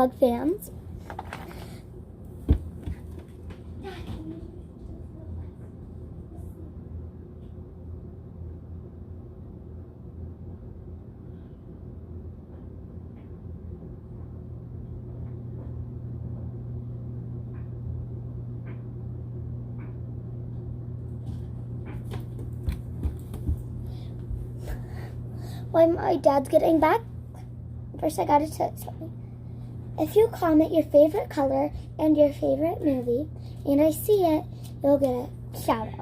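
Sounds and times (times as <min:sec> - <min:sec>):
low appliance hum: 0:00.0 - 0:36.0.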